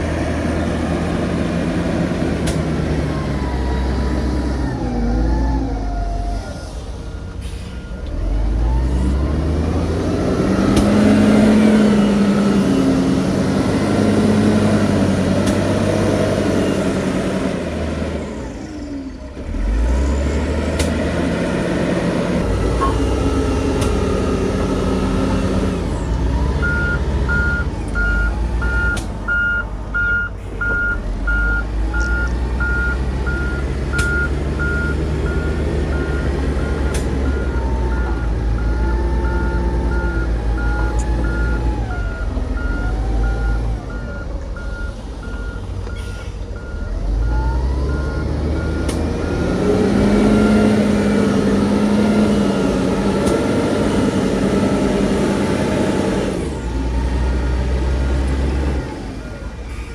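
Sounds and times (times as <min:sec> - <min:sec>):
diesel machinery engines revving: 0:00.0 - 0:59.9
reversing alarm beeping: 0:22.7 - 0:52.9.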